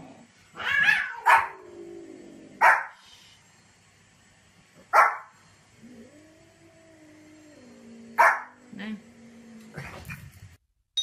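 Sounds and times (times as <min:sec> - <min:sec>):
small dog barking: 0:00.8 - 0:01.6, 0:02.6 - 0:03.0, 0:04.9 - 0:05.3, 0:08.2 - 0:08.6.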